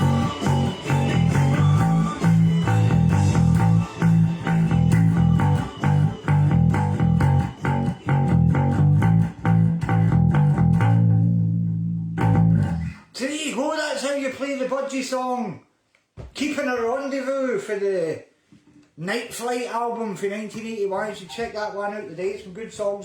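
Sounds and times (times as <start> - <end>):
electric bass guitar: 0.0 - 13.0
rock band recording: 0.0 - 13.0.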